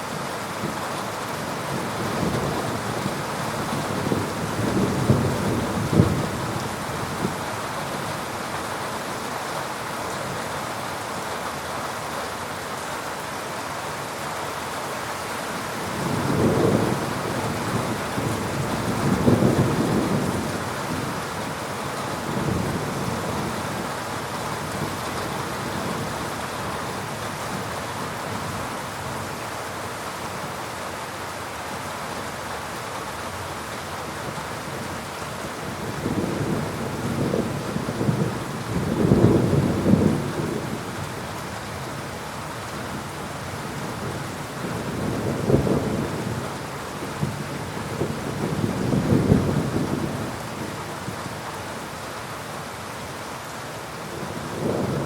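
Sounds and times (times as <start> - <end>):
heavy rain falling: 0.0 - 55.0
thunder rumbling: 15.9 - 21.2, 35.6 - 40.9, 47.2 - 50.7, 54.2 - 55.0.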